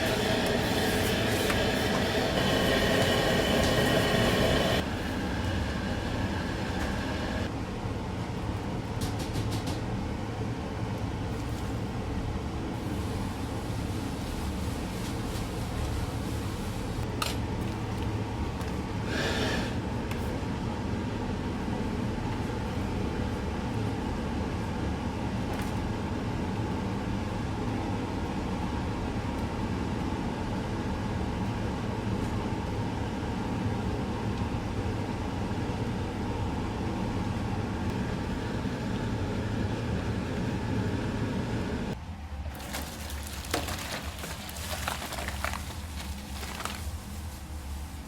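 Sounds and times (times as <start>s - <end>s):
kitchen equipment roaring: 0.0s - 7.6s, 37.9s - 48.0s.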